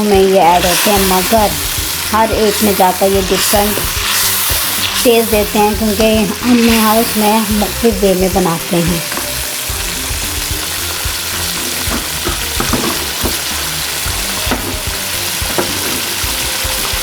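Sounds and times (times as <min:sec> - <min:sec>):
chicken sizzling in oil: 0:00.0 - 0:17.0
spoon knocking against pot: 0:11.7 - 0:13.4.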